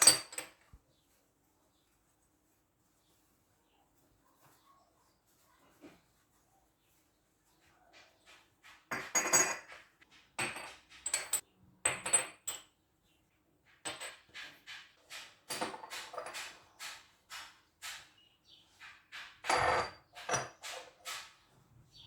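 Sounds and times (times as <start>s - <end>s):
dishes and utensils clinking: 8.7s - 12.7s.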